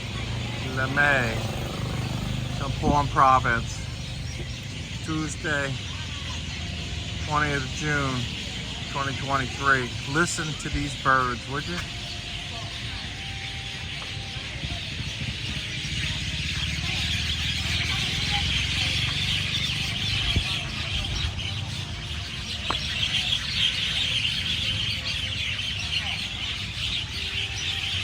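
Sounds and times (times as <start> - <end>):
flock of birds chattering: 0.0 - 28.0.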